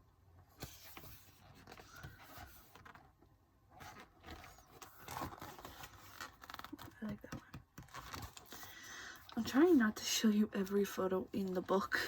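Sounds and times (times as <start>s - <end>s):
paper pages rustling: 3.8s - 9.8s.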